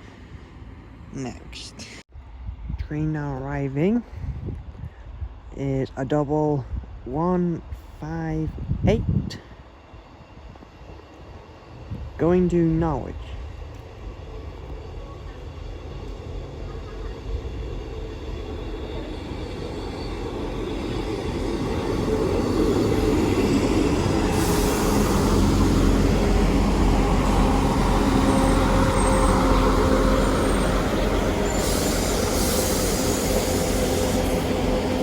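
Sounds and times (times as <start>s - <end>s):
diesel train engine: 3.2s - 35.0s
train wheel noise: 12.9s - 35.0s
high hissing or squealing: 21.8s - 35.0s.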